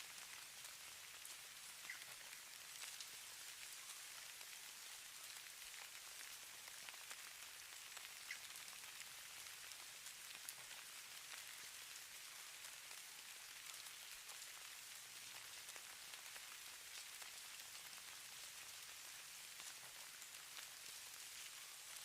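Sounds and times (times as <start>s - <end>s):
falling snow hiss: 13.6s - 22.0s.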